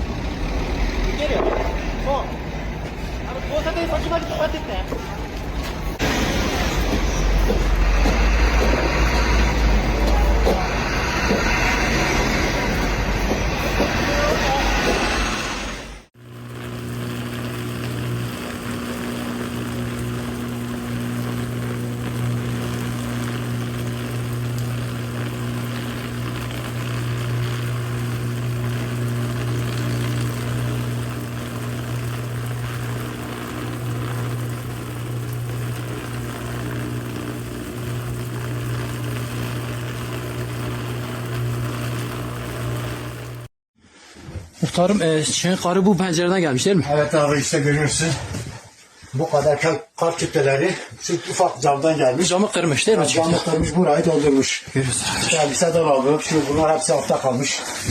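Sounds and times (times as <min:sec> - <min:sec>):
mechanical drone: 0:00.0 - 0:04.2, 0:05.2 - 0:43.5.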